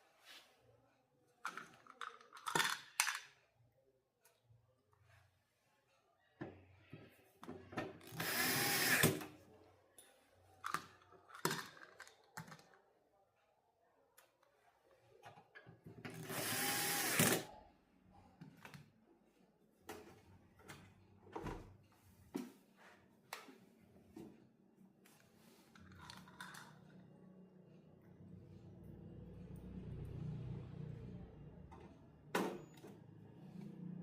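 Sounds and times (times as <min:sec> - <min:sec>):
electric screwdriver running: 0:08.1 - 0:09.2, 0:16.2 - 0:17.5.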